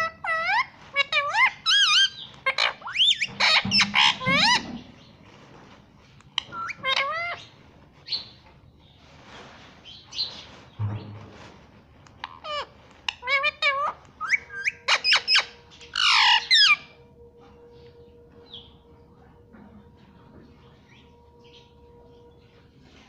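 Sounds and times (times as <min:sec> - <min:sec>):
parrot squawking and chirping: 0:00.0 - 0:05.1, 0:06.4 - 0:08.4, 0:12.1 - 0:17.0.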